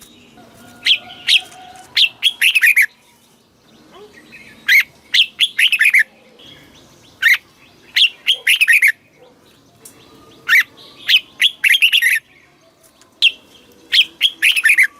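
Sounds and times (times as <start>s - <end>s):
bird singing whistled notes: 3.7s - 12.3s, 13.2s - 14.9s.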